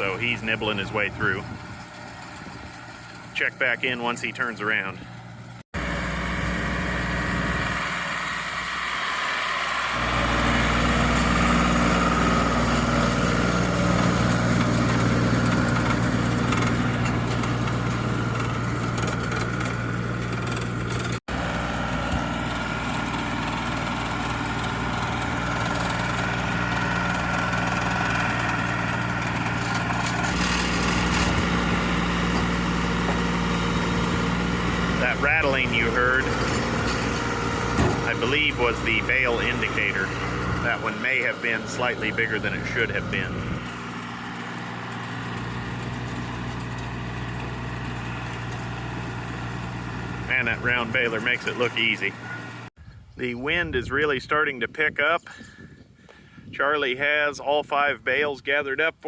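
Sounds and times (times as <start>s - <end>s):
baler indicator rattle: 0.0s - 4.0s, 10.0s - 21.2s, 22.0s - 52.6s
tractor running: 0.0s - 55.4s.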